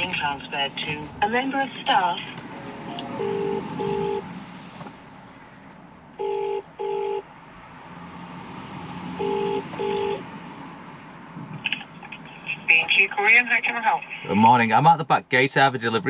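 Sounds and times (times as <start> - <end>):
telephone ringing tone: 2.9 - 4.2.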